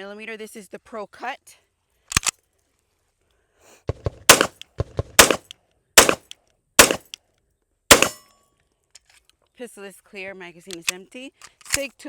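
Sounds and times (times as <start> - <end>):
fainter sharp bangs: 4.2 - 6.2, 6.8 - 7.0, 7.9 - 8.2
pistol shots: 4.3 - 4.6, 5.2 - 7.2, 7.9 - 8.2.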